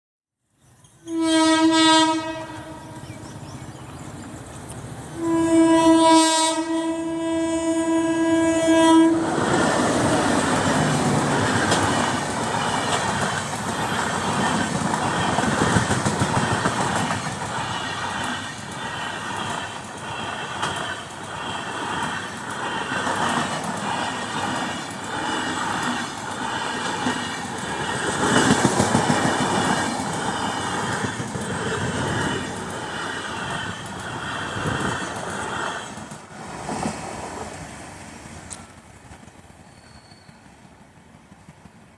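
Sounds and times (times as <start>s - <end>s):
train rumbling past: 0.8s - 41.9s
locomotive horn blasts: 1.0s - 3.2s, 5.2s - 9.4s.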